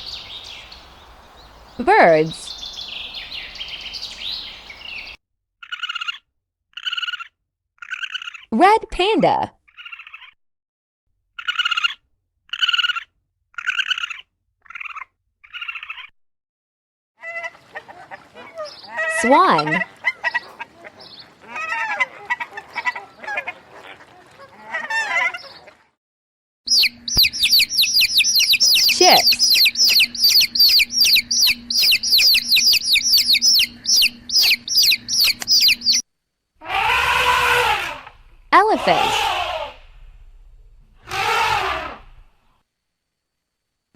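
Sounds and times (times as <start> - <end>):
red panda calling: 17.3 - 25.7, 27.8 - 31.2, 36.6 - 39.8, 41.0 - 42.2
baby chicks peeping: 26.7 - 36.0.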